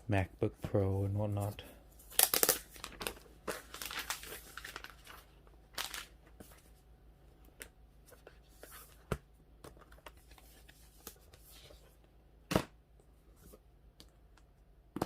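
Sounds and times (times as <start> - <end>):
packaging rustling and crinkling: 2.1 - 6.2.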